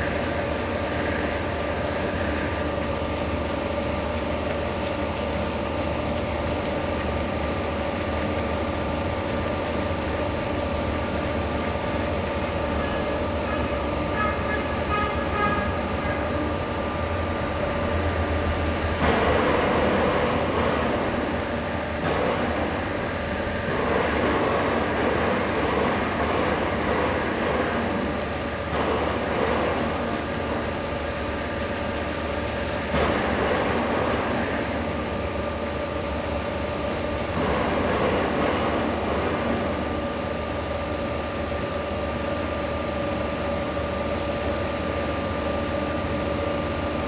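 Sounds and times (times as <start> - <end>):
loud rough machine noise: 0.0 - 44.5
lathe mechanical hum: 0.0 - 47.0.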